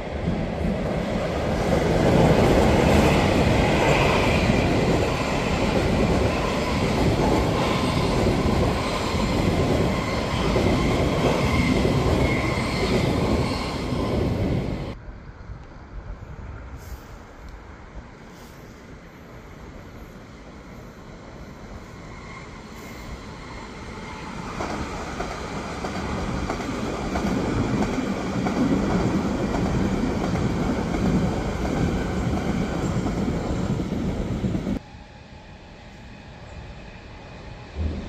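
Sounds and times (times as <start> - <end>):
train wheels rumbling past: 21.1 - 38.0.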